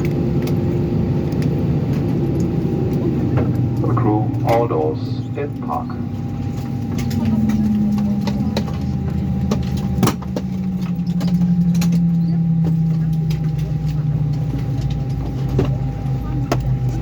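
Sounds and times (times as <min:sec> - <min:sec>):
low machinery hum: 0:00.0 - 0:17.0.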